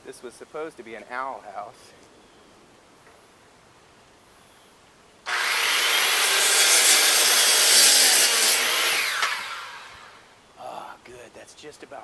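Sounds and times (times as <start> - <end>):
power saw cutting wood: 5.3 - 10.3.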